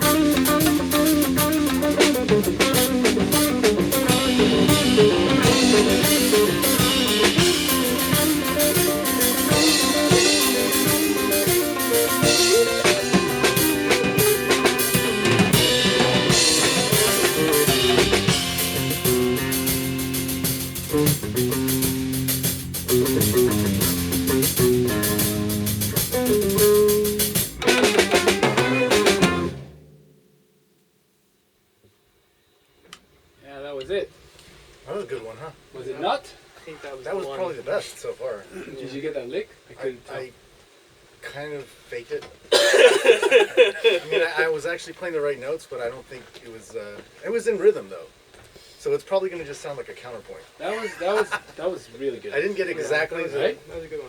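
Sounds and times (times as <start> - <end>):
drum kit: 0.0 - 30.2
plucked shamisen runs: 27.6 - 29.4.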